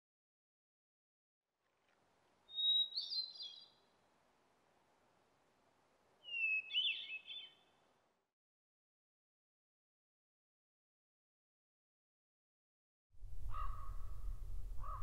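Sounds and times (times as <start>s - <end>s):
faint outdoor hiss: 1.6s - 8.3s
songbird whistling and twittering: 2.5s - 3.8s, 6.2s - 7.6s.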